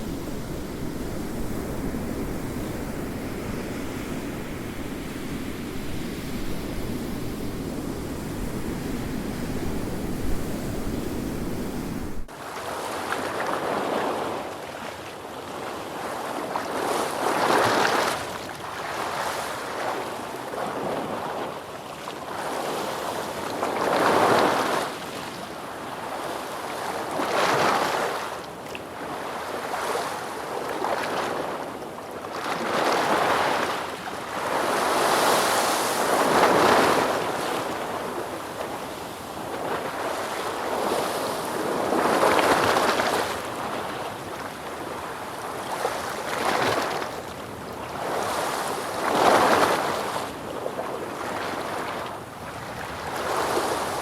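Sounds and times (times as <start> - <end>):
waves breaking and washing back: 0.0 - 54.0.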